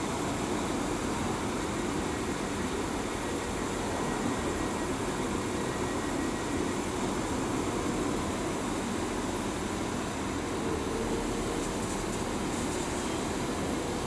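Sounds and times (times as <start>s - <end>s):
train wheels on rails: 11.1s - 14.0s.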